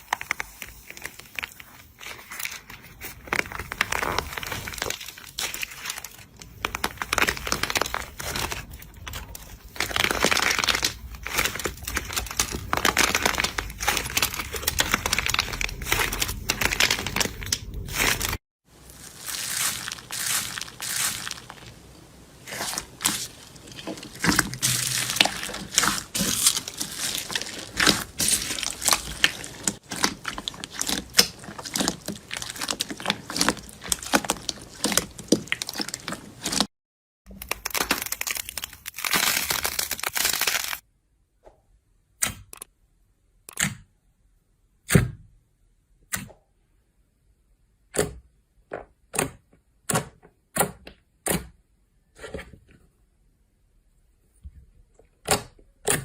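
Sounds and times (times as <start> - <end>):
slime crackling and popping: 0.0 - 36.7, 37.3 - 40.8.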